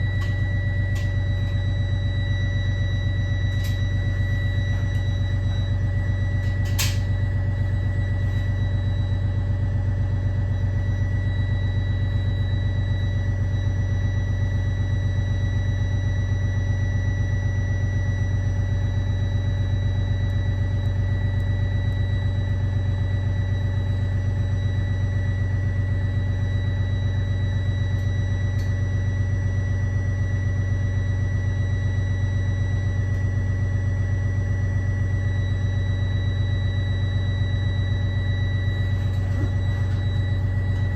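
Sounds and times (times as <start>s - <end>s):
thin high whine: 35.0s - 40.9s
diesel bus engine hum: 38.1s - 40.9s.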